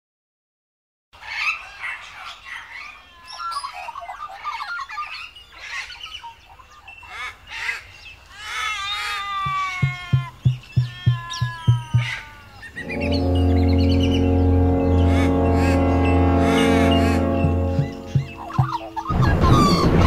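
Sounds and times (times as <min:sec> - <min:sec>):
steady low drum beat: 0:09.5 - 0:12.2, 0:12.8 - 0:20.0
birds warbling and squawking: 0:09.5 - 0:20.0.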